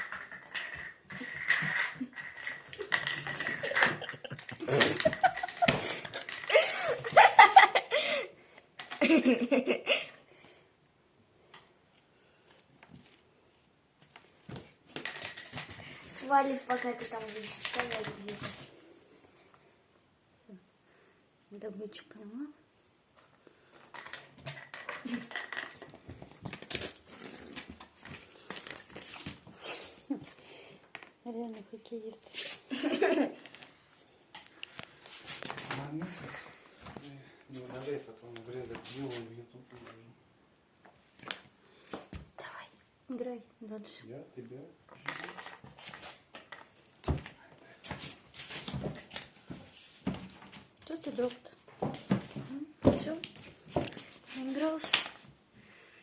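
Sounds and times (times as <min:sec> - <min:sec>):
object clattering on hard floor: 0:00.0 - 0:07.3, 0:14.5 - 0:16.0, 0:23.9 - 0:29.5
people laughing: 0:03.5 - 0:08.3.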